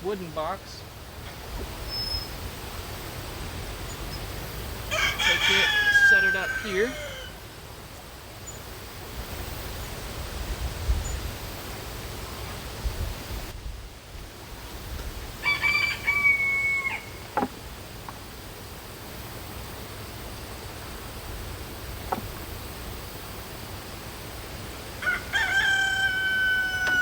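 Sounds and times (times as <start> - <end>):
rooster crowing: 4.9 - 7.5, 15.4 - 17.3, 24.9 - 27.0.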